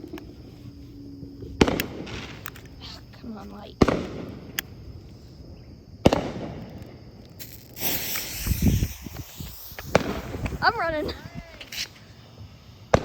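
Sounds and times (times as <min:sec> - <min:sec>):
sharp crack: 0:01.6 - 0:02.8, 0:03.8 - 0:04.8, 0:06.0 - 0:12.2
fuse hissing: 0:07.4 - 0:13.0.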